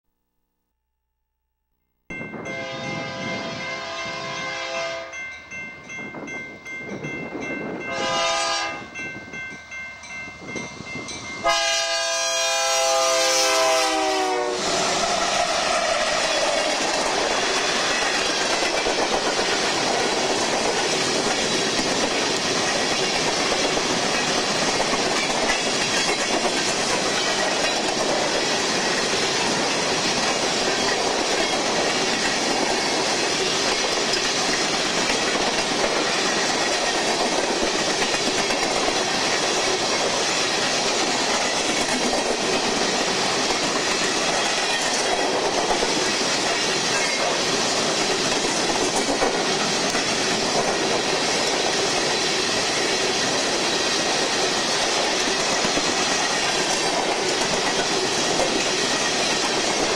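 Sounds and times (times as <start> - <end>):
locomotive air horn blasts: 2.4 - 5.2, 7.9 - 8.9, 11.4 - 14.9.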